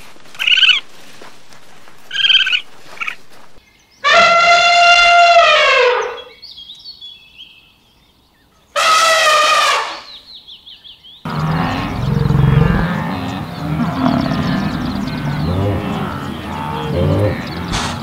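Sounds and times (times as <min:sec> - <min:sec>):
outdoor animal sounds: 0:00.3 - 0:00.8, 0:02.1 - 0:18.0
elephant trumpeting: 0:04.0 - 0:06.2, 0:11.3 - 0:18.0.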